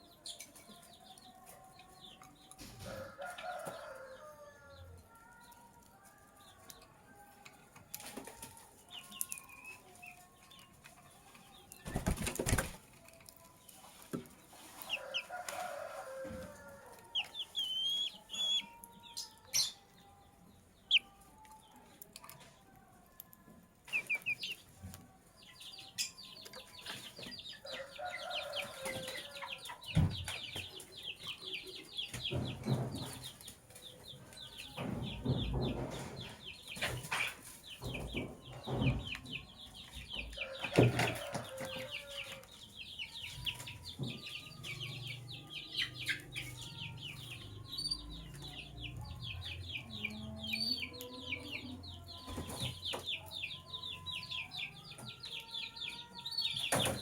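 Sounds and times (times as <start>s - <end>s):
lovebirds chirping: 8.9s - 20.2s, 25.7s - 57.0s.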